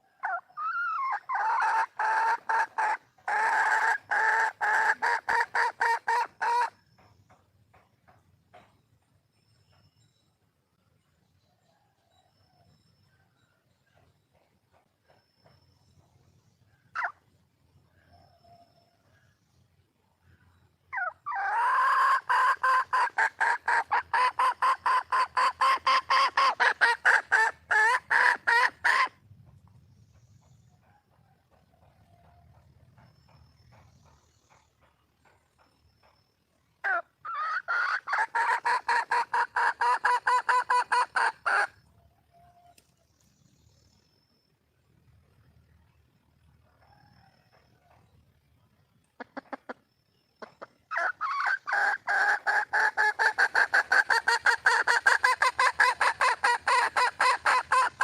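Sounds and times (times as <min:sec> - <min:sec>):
junglefowl hen clucking call: 0:00.0 - 0:06.8, 0:16.9 - 0:17.2, 0:20.9 - 0:29.2, 0:36.8 - 0:42.8, 0:49.2 - 0:58.0.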